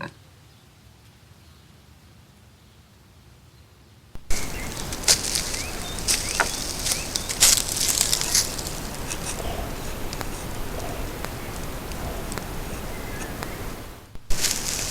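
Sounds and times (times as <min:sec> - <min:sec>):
bird chirps: 0:04.2 - 0:14.9
crackling and rustling: 0:04.2 - 0:14.9.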